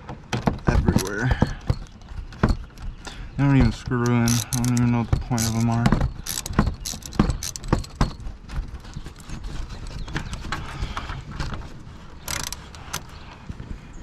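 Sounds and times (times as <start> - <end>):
ratchet clicking: 3.7 - 8.1, 12.2 - 13.1.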